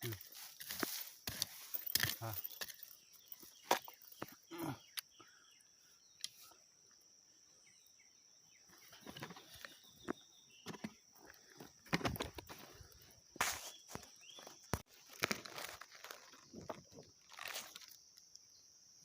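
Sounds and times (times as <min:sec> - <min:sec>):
hand digging in soil: 0:00.0 - 0:02.8
insect trill: 0:00.0 - 0:19.0.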